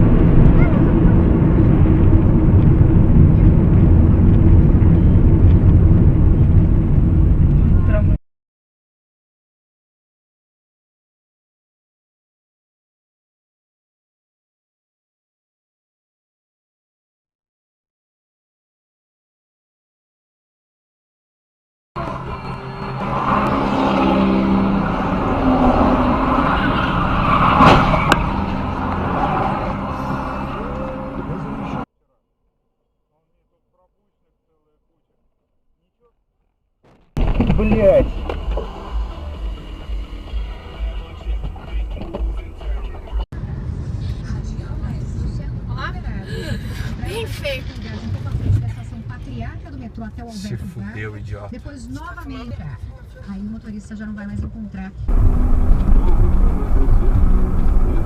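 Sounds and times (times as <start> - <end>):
road noise: 0.0 - 8.2, 22.0 - 31.9, 37.2 - 58.0
vehicle engine rumble: 0.0 - 8.2, 22.0 - 31.9, 37.2 - 58.0.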